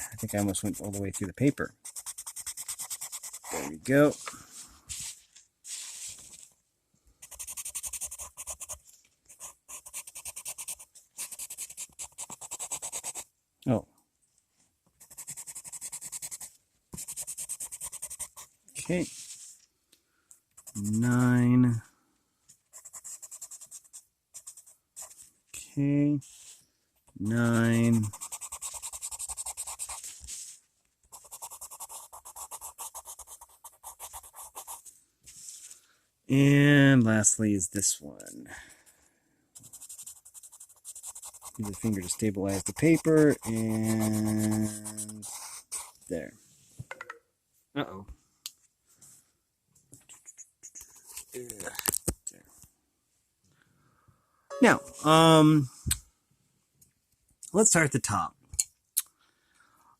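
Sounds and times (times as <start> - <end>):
pencil scribbling on paper: 0.0 - 4.2, 7.2 - 13.3, 15.0 - 19.3, 20.6 - 21.5, 22.7 - 25.2, 27.2 - 30.5, 31.1 - 34.9, 39.6 - 46.0.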